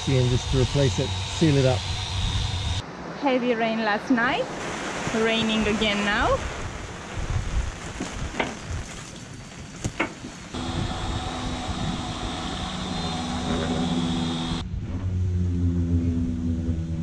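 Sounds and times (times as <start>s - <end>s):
faint high whine: 0.0s - 2.8s, 10.6s - 14.6s
mechanical hum: 0.0s - 2.8s, 10.6s - 16.9s
steady rain: 4.2s - 13.3s.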